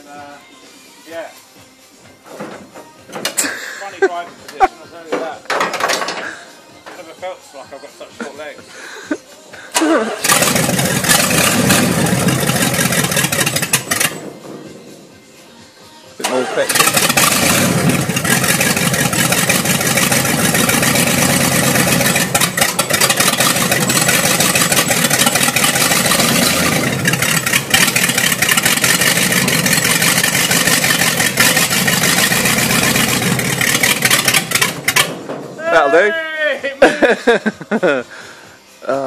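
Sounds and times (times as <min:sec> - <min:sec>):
car engine running loudly: 0:10.1 - 0:15.2, 0:16.3 - 0:35.6.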